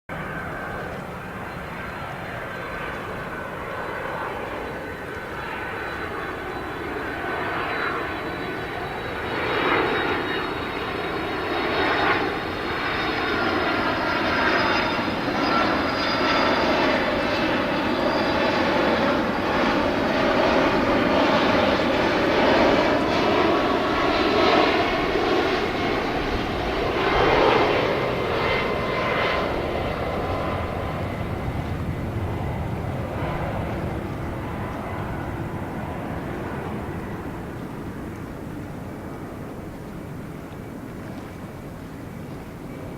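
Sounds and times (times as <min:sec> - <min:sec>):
jet engines roaring and whining: 0:00.1 - 0:42.9.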